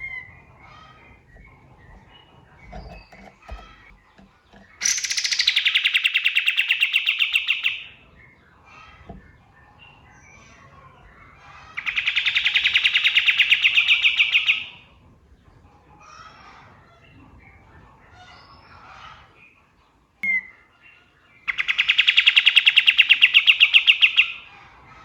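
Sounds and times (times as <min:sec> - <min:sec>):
bird singing rapid trills: 0:00.0 - 0:08.5, 0:11.8 - 0:14.8, 0:21.4 - 0:24.5.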